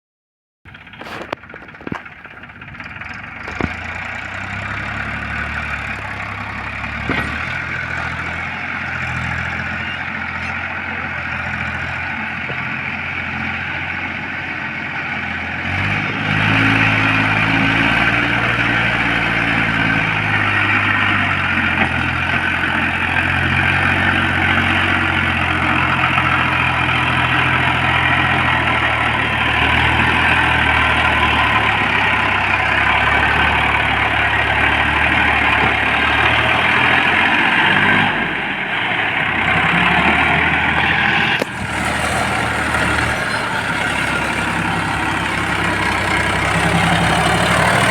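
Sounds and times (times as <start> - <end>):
tractor diesel engine running: 0.7 - 47.9.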